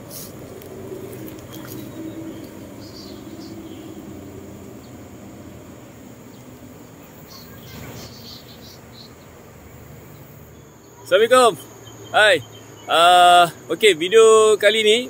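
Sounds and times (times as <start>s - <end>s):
low background rumble: 0.0s - 11.0s
high-pitched insect trill: 0.0s - 15.0s.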